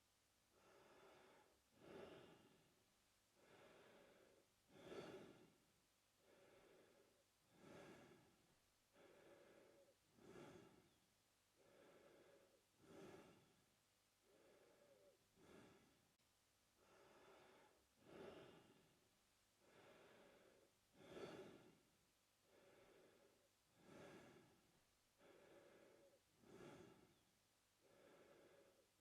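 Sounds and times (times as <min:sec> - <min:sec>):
man breathing through mouth: 0:03.4 - 0:05.6, 0:06.2 - 0:11.0, 0:11.6 - 0:13.6, 0:14.2 - 0:16.0, 0:19.6 - 0:21.8, 0:22.5 - 0:27.2.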